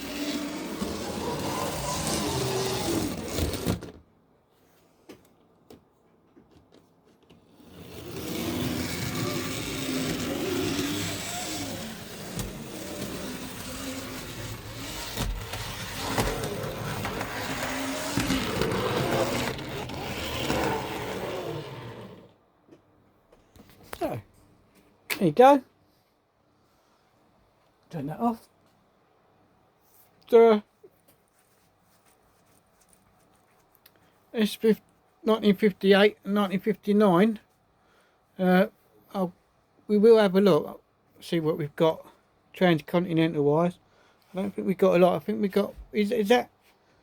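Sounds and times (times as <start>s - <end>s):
model train whirring on track: 0.0s - 3.6s, 7.6s - 22.3s.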